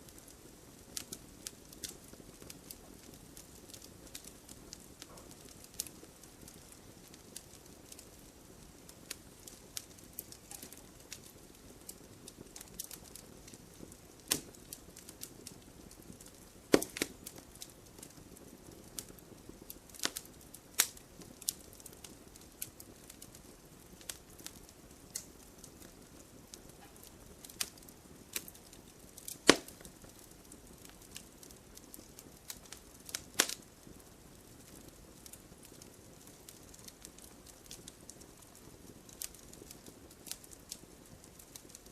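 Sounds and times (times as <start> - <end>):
fire hissing: 0.0 - 41.9
sharp snaps of fire: 0.0 - 41.9
wood fire crackling: 0.0 - 41.9.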